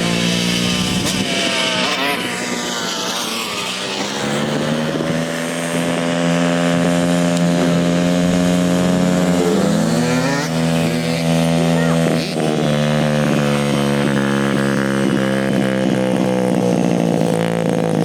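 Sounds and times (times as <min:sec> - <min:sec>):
dirtbike engine running: 0:00.0 - 0:18.0.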